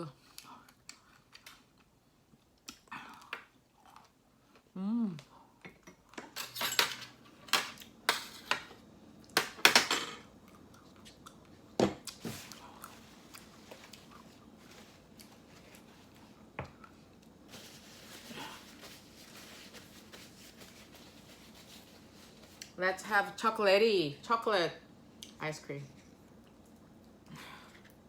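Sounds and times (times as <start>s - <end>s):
chewing: 10.4s - 17.4s.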